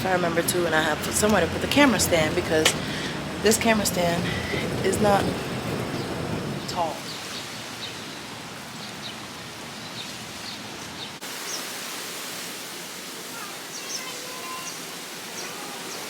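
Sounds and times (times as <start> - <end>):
small birds chirping: 1.4 - 9.2, 13.3 - 16.0.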